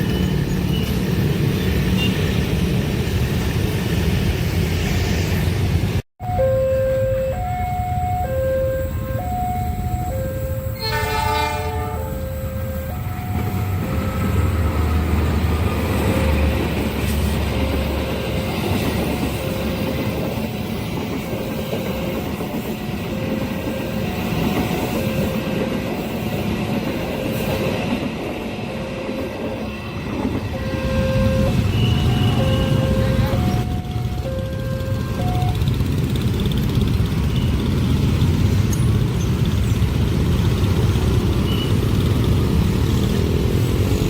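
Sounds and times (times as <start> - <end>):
level-crossing alarm two-note tones: 6.2 - 11.2, 11.8 - 14.9, 30.5 - 35.8
train horn blast: 10.6 - 13.3, 30.5 - 33.6
train wheels clattering on rails: 13.2 - 30.7.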